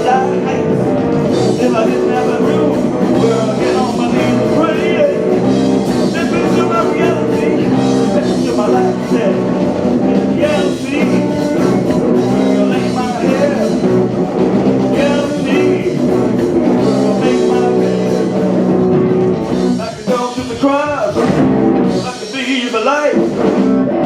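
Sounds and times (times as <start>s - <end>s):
person singing: 0.0s - 21.3s
blues rock band playing: 0.0s - 24.0s.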